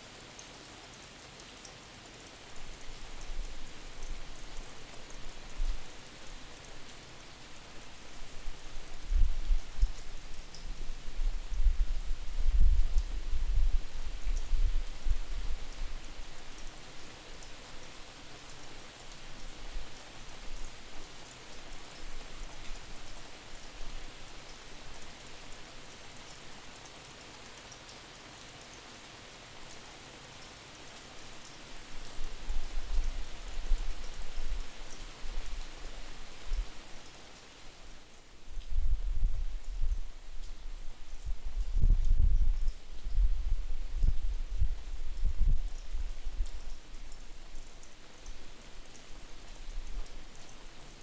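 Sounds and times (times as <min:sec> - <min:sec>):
steady rain falling: 0:00.0 - 0:51.0
wind buffeting microphone: 0:38.6 - 0:46.7.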